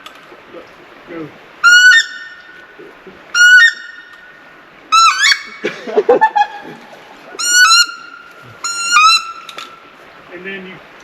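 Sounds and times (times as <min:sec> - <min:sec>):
duck call rasping quacks: 0:07.4 - 0:09.6.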